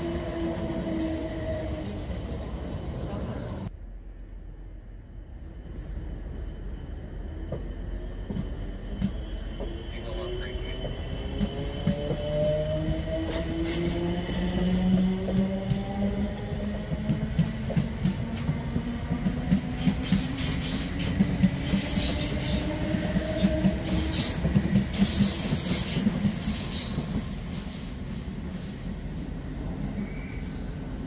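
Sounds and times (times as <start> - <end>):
low train rumble: 0.0 - 31.0
train wheels clattering on track: 7.4 - 9.8, 10.6 - 28.9.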